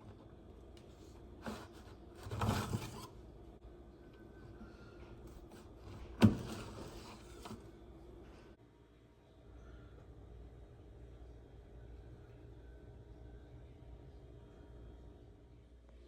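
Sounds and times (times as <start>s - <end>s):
rustling scrape: 1.4s - 3.2s.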